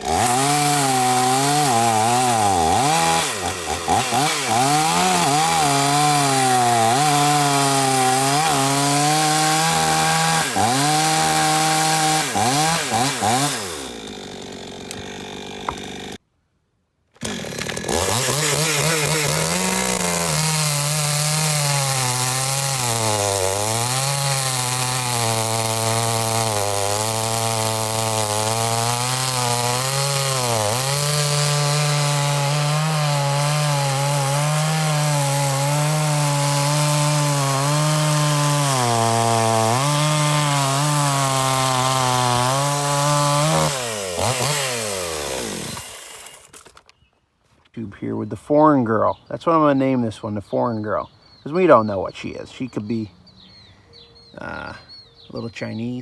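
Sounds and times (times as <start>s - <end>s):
two-stroke chainsaw revving: 0.0s - 16.2s, 17.2s - 46.8s.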